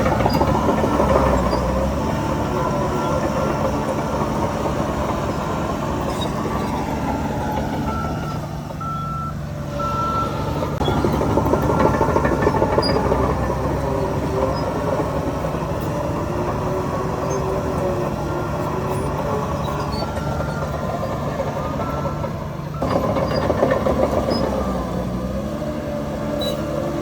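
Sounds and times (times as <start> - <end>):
heavy diesel engines running: 0.0 - 27.0
reversing alarm beeping: 0.1 - 15.9, 16.9 - 24.8.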